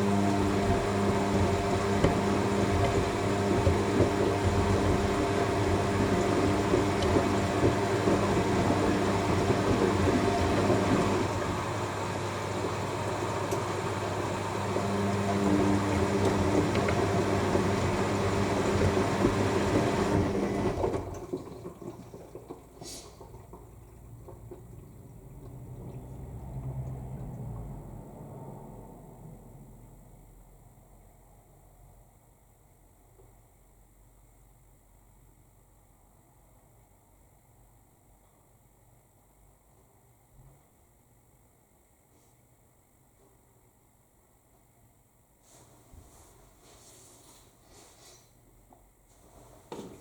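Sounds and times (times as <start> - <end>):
drum motor humming: 0.0 - 13.7
water rushing into washing machine: 0.0 - 29.0.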